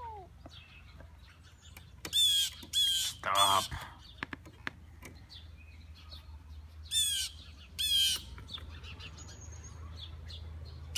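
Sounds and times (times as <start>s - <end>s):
bird squawking: 1.4s - 4.2s, 6.8s - 9.4s.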